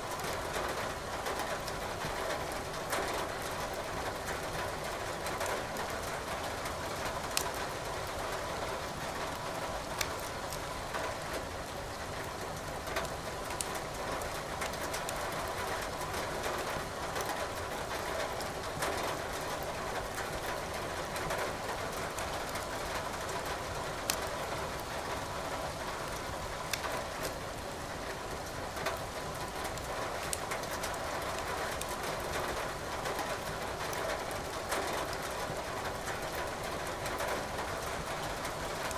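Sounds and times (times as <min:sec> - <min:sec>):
wood fire crackling and popping: 0:26.7 - 0:26.9.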